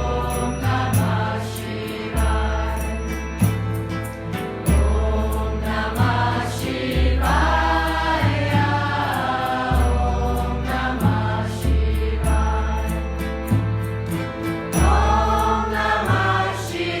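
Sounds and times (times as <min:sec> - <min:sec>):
deep bass notes: 0:00.0 - 0:17.0
music with steady beat: 0:00.0 - 0:17.0
group chanting: 0:04.7 - 0:13.0, 0:14.8 - 0:17.0.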